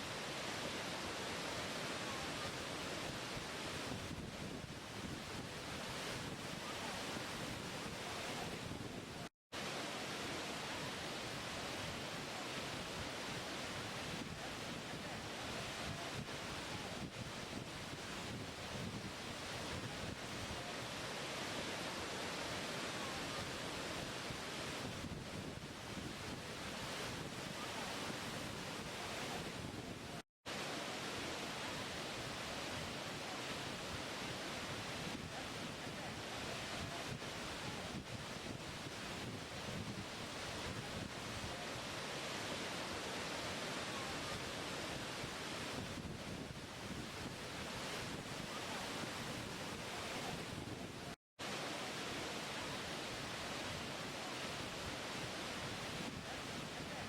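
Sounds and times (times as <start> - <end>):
falling water rushing: 0.0 - 3.9, 9.6 - 14.2, 20.4 - 24.9, 30.5 - 39.2, 40.2 - 45.8, 47.4 - 50.4, 51.4 - 57.0.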